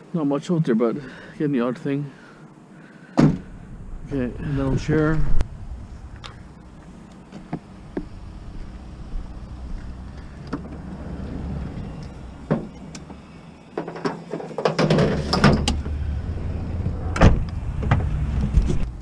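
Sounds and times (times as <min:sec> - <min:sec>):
vehicle low rumble: 0:03.4 - 0:19.0
rattling and clunks: 0:09.8 - 0:16.0.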